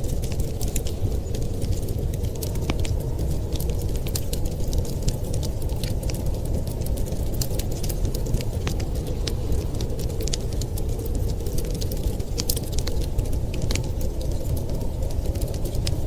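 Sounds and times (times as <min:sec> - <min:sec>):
storm wind rumble: 0:00.0 - 0:16.0
wood fire crackling: 0:00.0 - 0:16.0.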